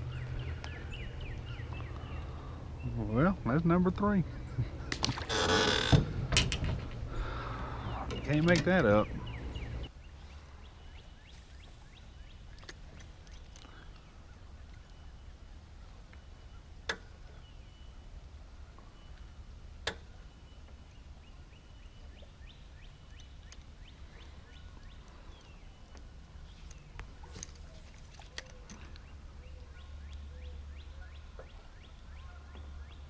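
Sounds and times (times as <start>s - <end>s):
low steady rumble: 0.0s - 28.1s
birds chirping: 0.0s - 33.0s.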